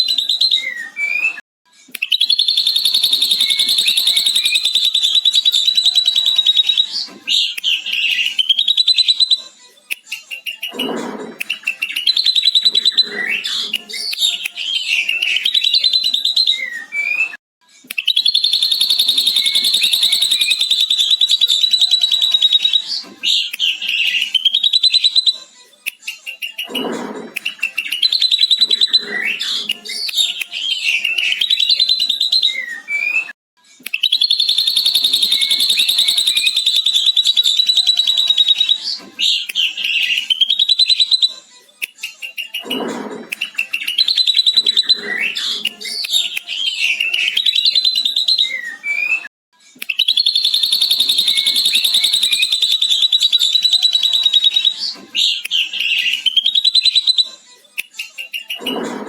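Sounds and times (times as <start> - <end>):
bird whistles and harsh calls: 0.0 - 1.4, 2.0 - 9.5, 10.4 - 17.4, 18.0 - 25.4, 26.3 - 33.3, 33.9 - 41.4, 42.3 - 49.3, 49.9 - 57.4, 58.2 - 59.0.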